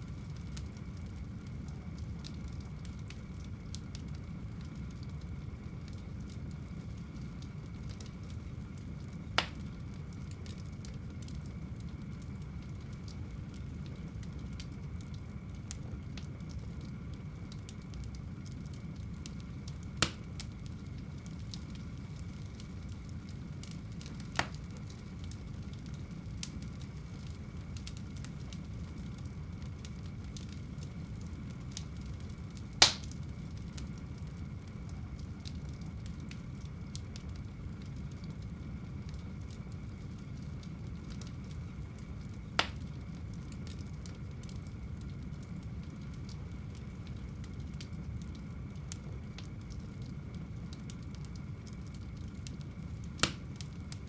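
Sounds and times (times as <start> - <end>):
wood fire crackling: 0.0 - 54.0
sharp fire pops: 9.4 - 9.7, 19.6 - 28.6, 31.2 - 33.2, 42.6 - 42.9, 53.2 - 53.7.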